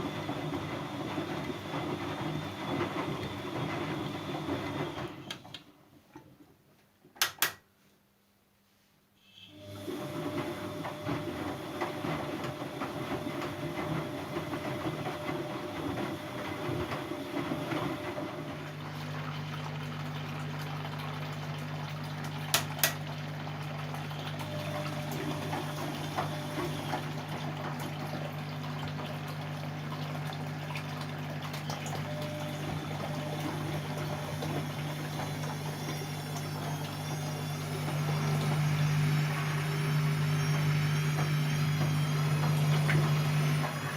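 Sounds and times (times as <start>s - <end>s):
washing machine water rushing: 0.0s - 6.1s, 9.5s - 43.9s
washing machine humming: 0.0s - 6.6s, 9.3s - 43.9s
washing machine clicks: 7.1s - 7.6s, 22.2s - 23.2s.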